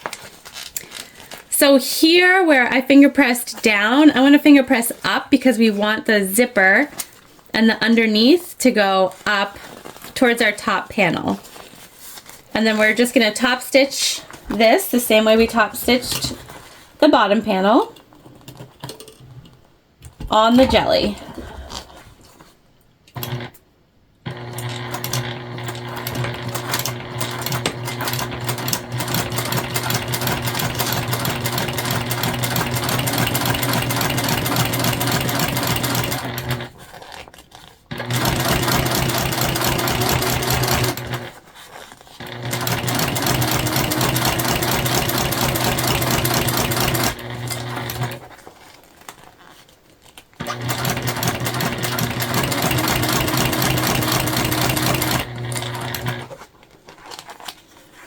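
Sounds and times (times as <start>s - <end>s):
sewing machine stitching: 23.2s - 23.6s, 24.3s - 36.8s, 37.9s - 41.4s, 42.2s - 48.3s, 50.4s - 56.4s.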